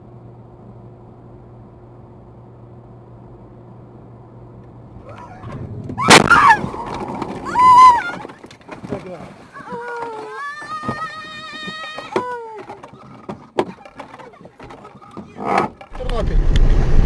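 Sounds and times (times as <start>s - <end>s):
car rumble and hum: 0.0s - 9.8s, 14.6s - 17.0s.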